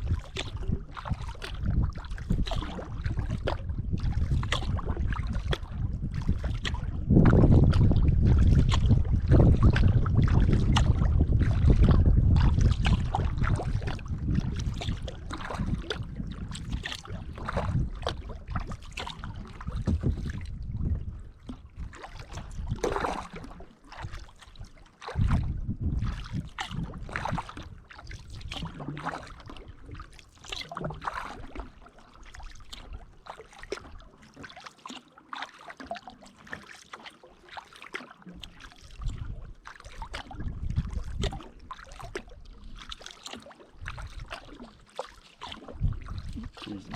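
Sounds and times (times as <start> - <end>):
wind buffeting microphone: 0.0 - 24.2, 25.2 - 28.9, 39.0 - 39.6, 40.2 - 41.6, 45.7 - 46.9
kayak paddle splashing water: 0.0 - 46.9.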